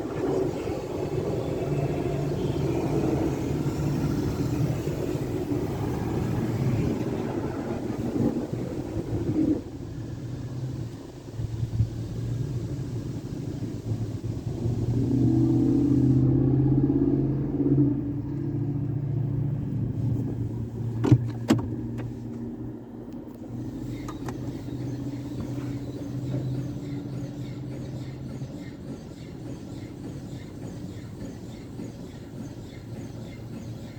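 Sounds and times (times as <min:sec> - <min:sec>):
water spray hiss: 0:10.6 - 0:16.3
motor and pump hum: 0:19.7 - 0:33.9.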